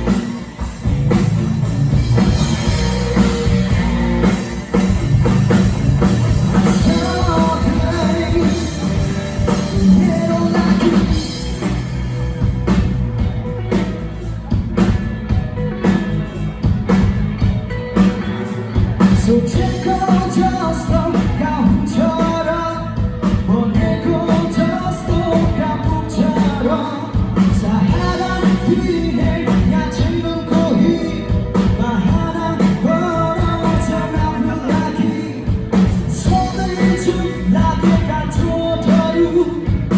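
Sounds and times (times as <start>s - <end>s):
live rock band playing: 0.0s - 39.9s
person singing: 6.5s - 11.8s, 19.0s - 39.9s.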